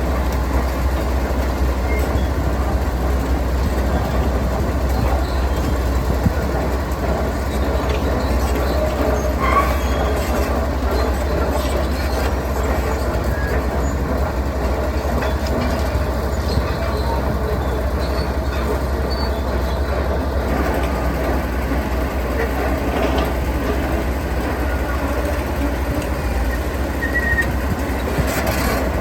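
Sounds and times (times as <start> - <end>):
diesel machinery engine rumble: 0.0 - 29.0
short high squeak: 27.0 - 27.6.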